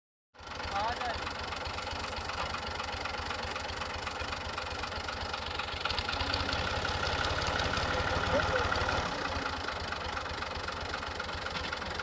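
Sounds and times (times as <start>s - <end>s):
tractor diesel engine running: 0.4s - 12.0s.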